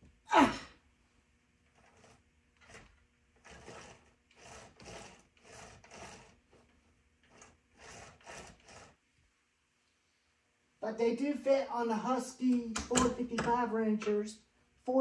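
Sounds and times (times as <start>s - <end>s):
chainsaw chain rasping and clicking: 1.8s - 9.0s.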